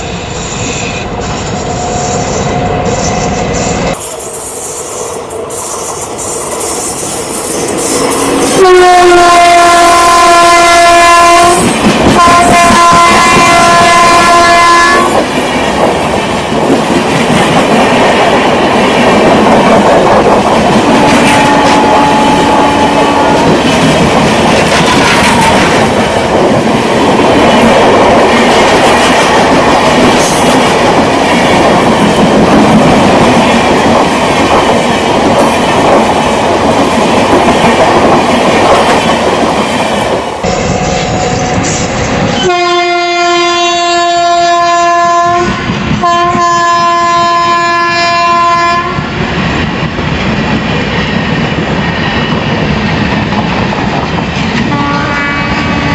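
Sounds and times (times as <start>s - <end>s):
train rumbling past: 0.0s - 55.9s
train horn blasts: 8.6s - 15.2s, 20.9s - 23.6s, 24.7s - 25.9s, 40.4s - 49.1s, 54.7s - 55.9s.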